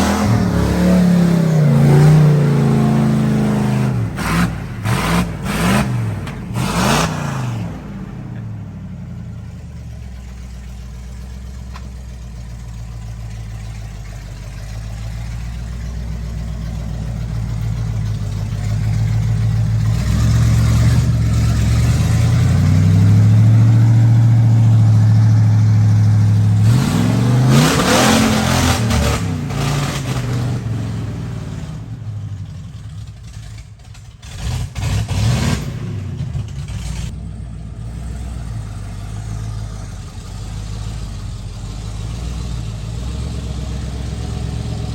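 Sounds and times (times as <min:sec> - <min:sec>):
truck engine revving: 0:00.0 - 0:44.9.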